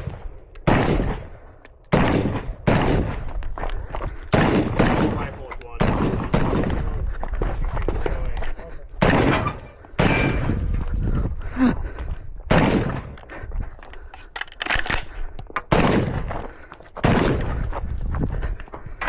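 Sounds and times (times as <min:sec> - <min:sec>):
rifle shots with echo: 0:00.0 - 0:03.4, 0:04.3 - 0:07.0, 0:09.0 - 0:10.6, 0:12.5 - 0:13.2, 0:15.7 - 0:17.7.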